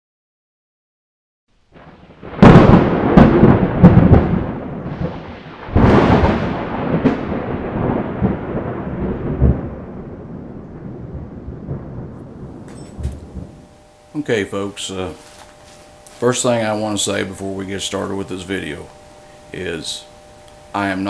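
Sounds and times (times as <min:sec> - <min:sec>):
thunder cracks and rumble: 0:01.8 - 0:13.8.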